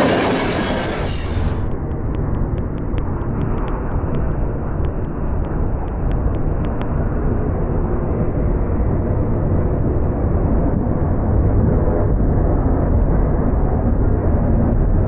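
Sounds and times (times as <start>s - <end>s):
freight train rumbling past: 0.0s - 1.8s.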